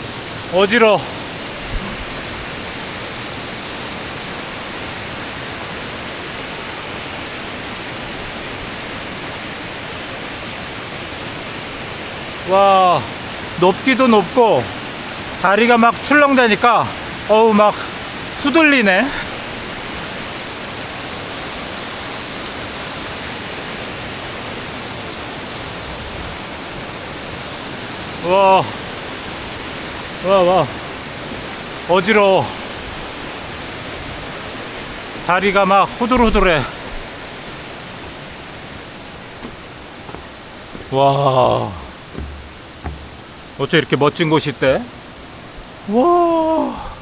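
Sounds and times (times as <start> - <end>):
mountain stream rushing: 0.0 - 47.0
low thump: 36.1 - 37.1, 41.8 - 43.4.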